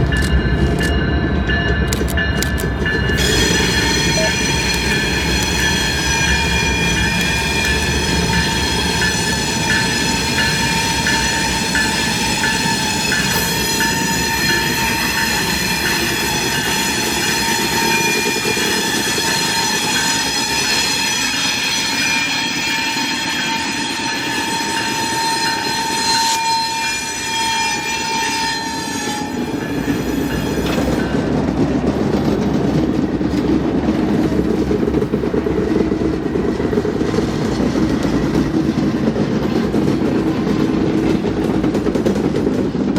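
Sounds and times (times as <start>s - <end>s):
train rumble and clatter: 0.0s - 42.9s
high-pitched train squeal: 2.8s - 31.2s.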